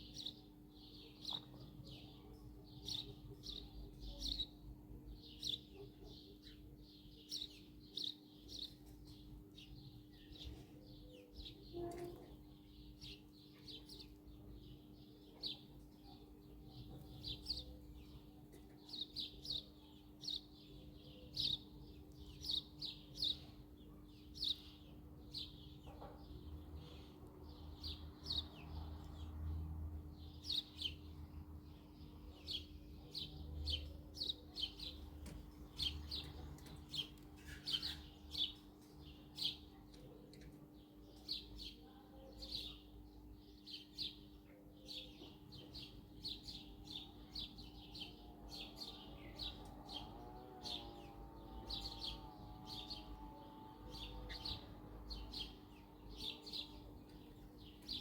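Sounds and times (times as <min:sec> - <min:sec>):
birds chirping: 0:30.2 - 0:58.0.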